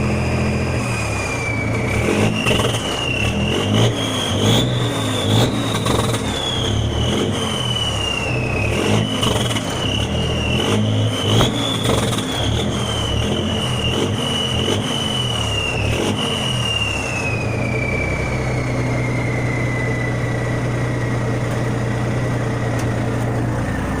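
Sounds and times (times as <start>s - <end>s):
high turbo whistle: 0.0s - 21.4s
diesel truck engine revving: 0.0s - 24.0s.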